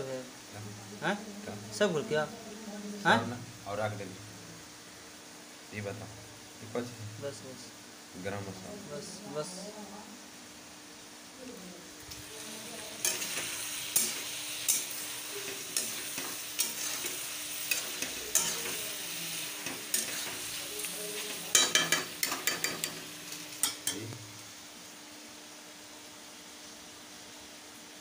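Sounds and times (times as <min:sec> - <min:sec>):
chicken sizzling in oil: 0:11.9 - 0:24.6
metal spatula scraping a wok: 0:12.9 - 0:23.0.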